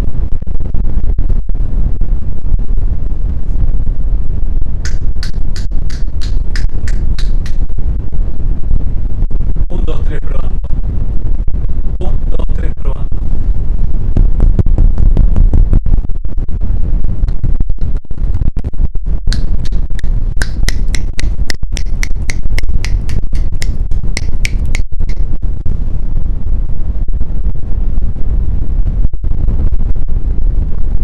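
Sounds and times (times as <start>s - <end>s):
short high ticks: 4.9s - 7.6s, 19.4s - 25.3s.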